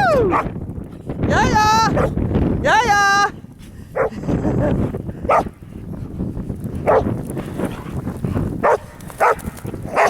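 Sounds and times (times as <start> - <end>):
dog barking: 1.9 - 2.2, 5.3 - 5.5, 6.8 - 7.1, 8.6 - 9.4.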